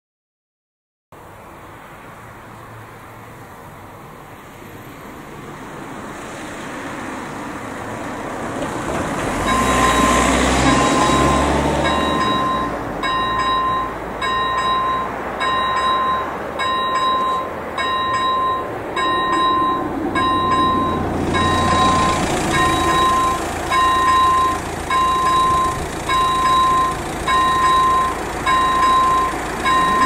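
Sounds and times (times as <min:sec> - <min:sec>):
level-crossing warning bell: 0:09.3 - 0:30.0.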